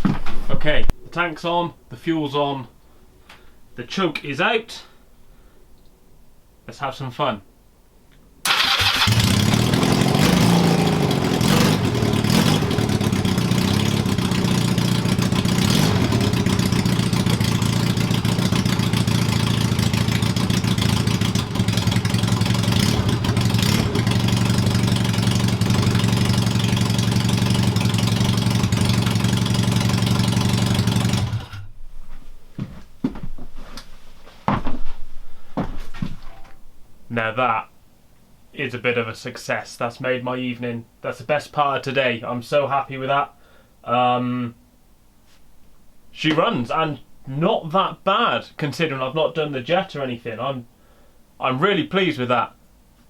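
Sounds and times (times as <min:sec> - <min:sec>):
motorcycle engine revving and idling: 0:08.7 - 0:31.6.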